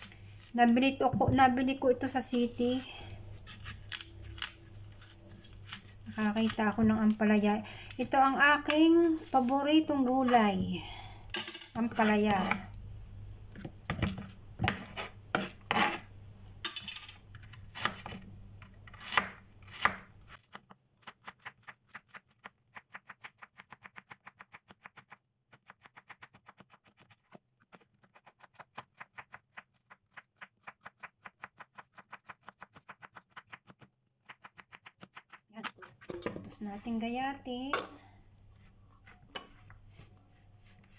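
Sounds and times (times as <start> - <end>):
knocks and scrapes: 13.6 - 16.1.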